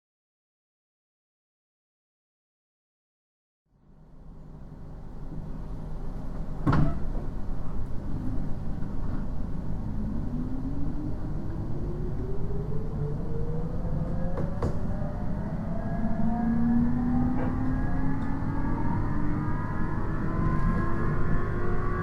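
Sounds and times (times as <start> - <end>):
traction motor whine rising: 9.8 - 22.0.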